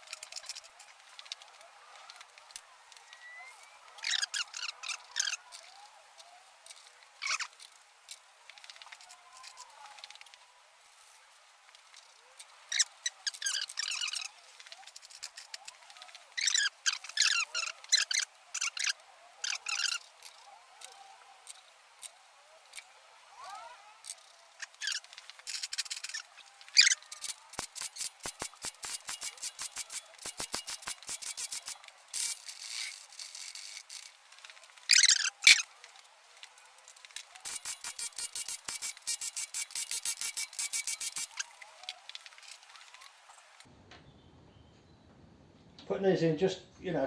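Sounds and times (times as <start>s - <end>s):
ratchet wrench clicking: 16.4s - 34.1s, 34.9s - 35.6s, 37.0s - 42.6s.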